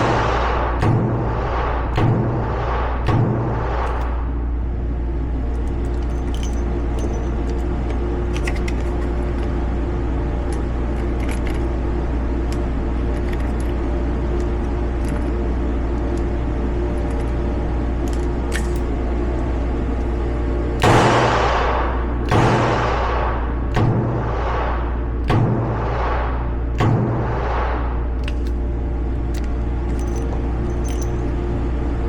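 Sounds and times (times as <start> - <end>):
steady low rumble: 0.0 - 32.0
revolver reloading clicks: 5.6 - 9.5, 12.4 - 19.0, 28.2 - 31.4.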